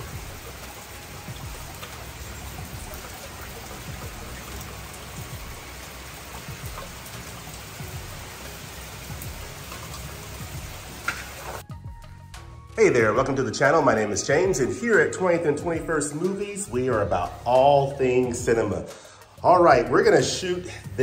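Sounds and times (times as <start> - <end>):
raindrops clicking: 0.0 - 11.6, 14.1 - 19.2
steady rain falling: 0.0 - 11.6.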